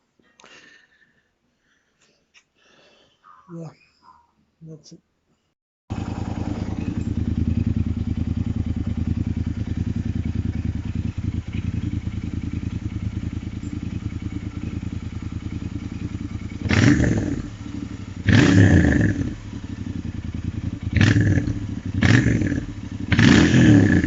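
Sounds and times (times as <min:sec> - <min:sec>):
motorcycle engine idling: 0:05.9 - 0:24.0
throttle blips revving engine: 0:05.9 - 0:24.0.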